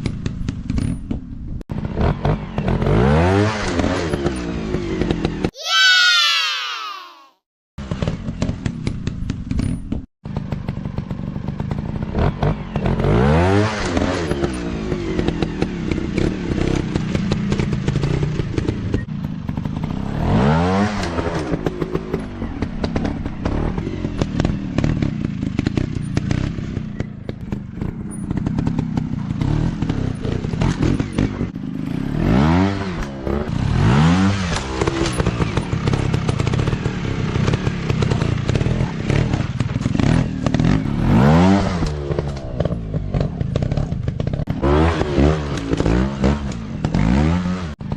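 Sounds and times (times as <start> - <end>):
off-road motorcycle engines revving: 1.7 - 5.5, 7.8 - 47.9.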